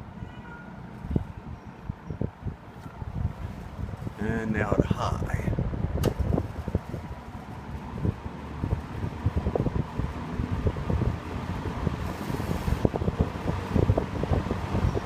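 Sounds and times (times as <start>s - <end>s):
wind buffeting microphone: 0.8s - 15.0s.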